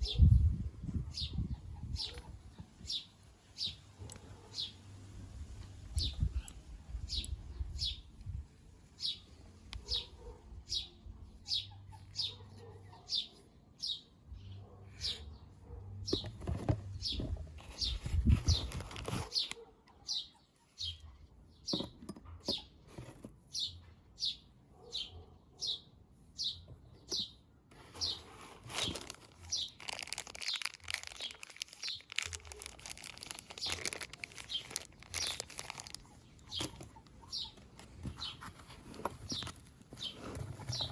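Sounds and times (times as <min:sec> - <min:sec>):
small bird chirping: 0:05.9 - 0:08.4, 0:23.5 - 0:40.9.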